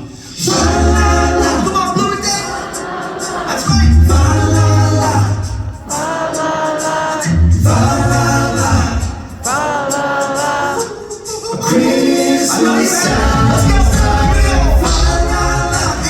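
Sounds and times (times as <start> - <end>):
group singing in close harmony: 0.0 - 16.0
low bass line: 13.1 - 16.0.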